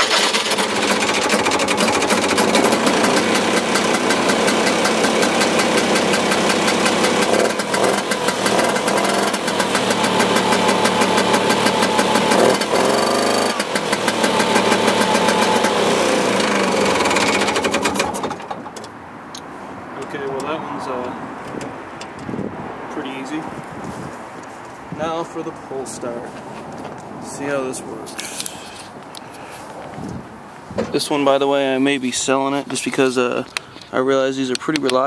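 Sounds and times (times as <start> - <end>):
snowmobile engine idling rattly: 0.0 - 18.8.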